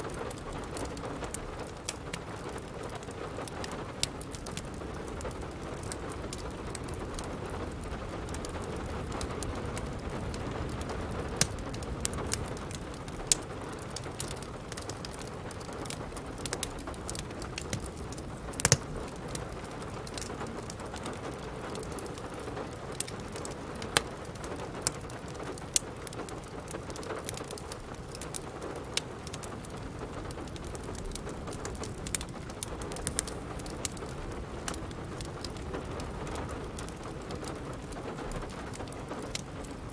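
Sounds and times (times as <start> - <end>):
steady rain falling: 0.0 - 39.9
wood fire crackling: 0.0 - 39.9.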